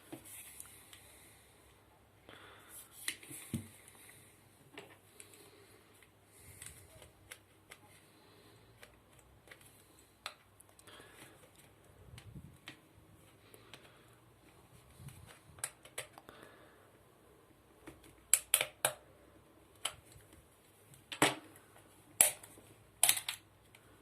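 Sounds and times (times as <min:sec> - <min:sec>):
plastic parts clicking and tapping: 0:15.0 - 0:16.3, 0:17.8 - 0:19.0, 0:22.2 - 0:23.8.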